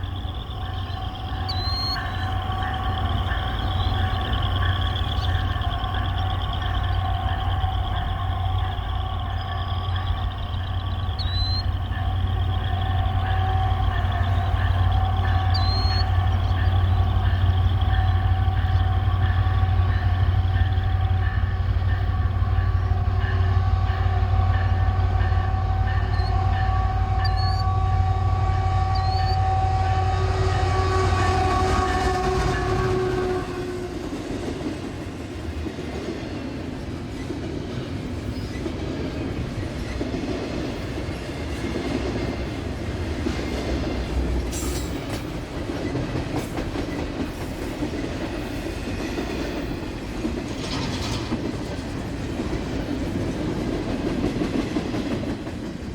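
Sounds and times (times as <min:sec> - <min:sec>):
heavy locomotive engine rumble: 0:00.0 - 0:55.9
locomotive horn: 0:21.4 - 0:34.4.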